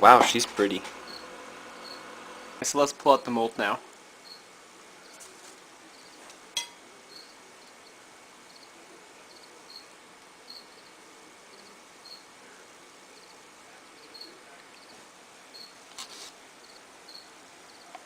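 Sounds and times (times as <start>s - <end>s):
crickets chirping: 1.1s - 2.1s, 4.2s - 5.2s, 5.9s - 6.2s, 7.1s - 7.9s, 8.5s - 9.9s, 10.5s - 11.0s, 11.6s - 12.3s, 13.1s - 13.4s, 14.0s - 15.8s, 16.6s - 17.9s.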